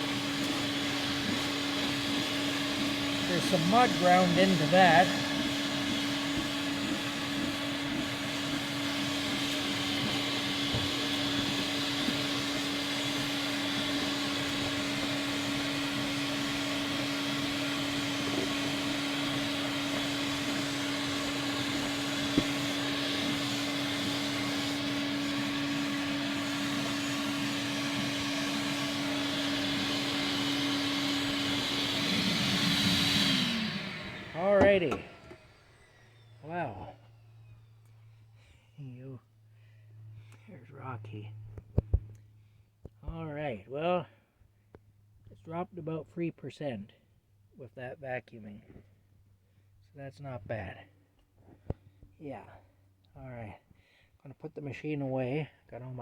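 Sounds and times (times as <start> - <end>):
vacuum cleaner running: 0.0 - 38.2.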